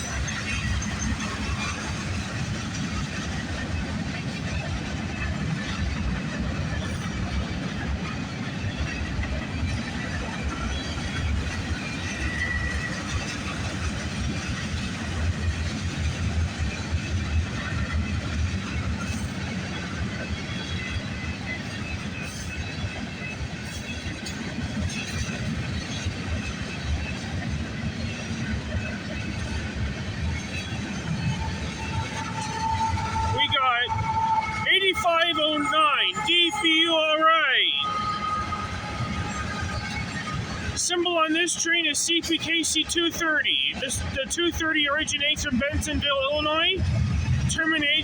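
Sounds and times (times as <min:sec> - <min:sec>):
train wheels rumbling on rail: 0:00.0 - 0:48.0
faint high wheel squeals: 0:10.0 - 0:13.6, 0:30.4 - 0:40.7.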